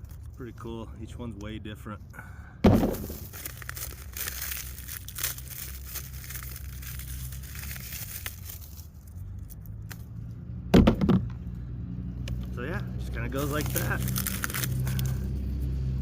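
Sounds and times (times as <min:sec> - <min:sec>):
dry corn husks crackling: 0:00.0 - 0:02.0, 0:02.8 - 0:10.2, 0:12.6 - 0:15.6.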